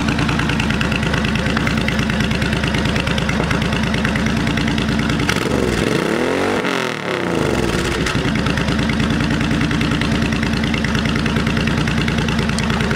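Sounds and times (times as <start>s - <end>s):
motorcycle engine revving and idling: 0.0s - 12.9s.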